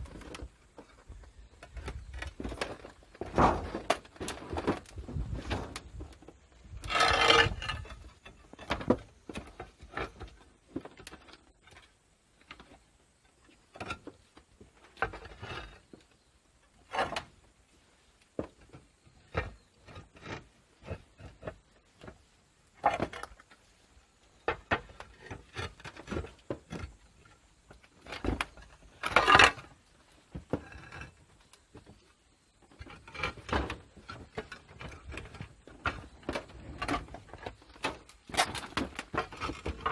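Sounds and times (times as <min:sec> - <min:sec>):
roof repair knocks and clatters: 0:01.7 - 0:06.2.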